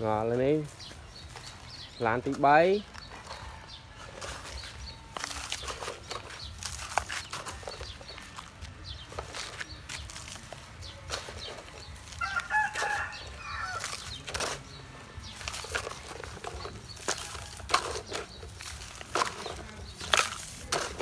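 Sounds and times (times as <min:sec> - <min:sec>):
chicken calling: 0:12.0 - 0:14.2.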